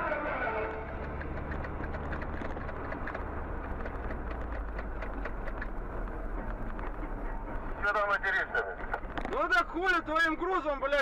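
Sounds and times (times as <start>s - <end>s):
car engine and road noise: 0.0s - 11.0s
small clicks and rattles: 0.7s - 7.3s, 8.8s - 9.5s.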